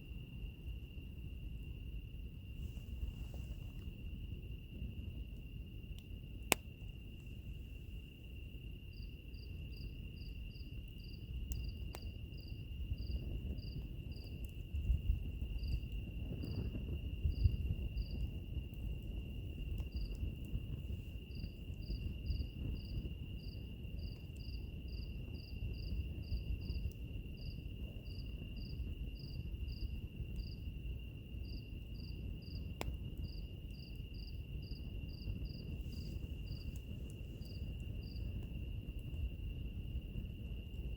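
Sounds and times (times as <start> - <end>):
cricket-like chirps: 0.0 - 40.9
insects trilling: 0.1 - 40.9
wood fire crackling and popping: 2.9 - 7.4, 9.9 - 40.9.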